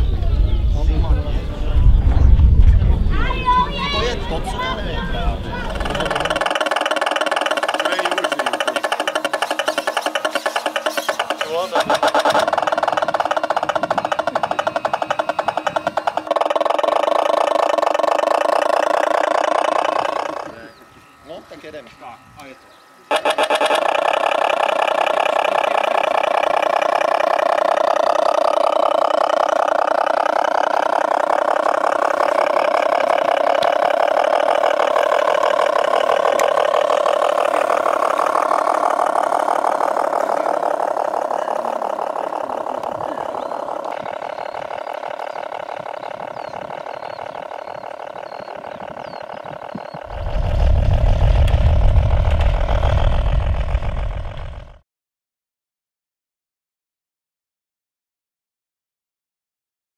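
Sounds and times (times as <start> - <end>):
loud low rumble: 0.0 - 6.4, 50.0 - 54.8
tractor engine running: 0.0 - 54.8.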